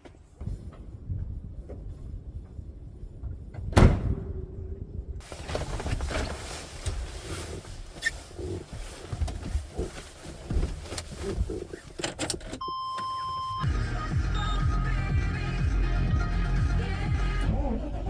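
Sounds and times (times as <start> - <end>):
clunks and rustles in vehicle: 5.2 - 13.6
electronic beep: 12.6 - 14.8.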